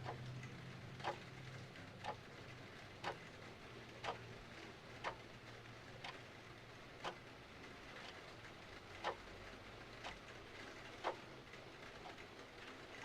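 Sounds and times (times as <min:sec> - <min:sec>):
clock ticking: 0:04.0 - 0:04.2.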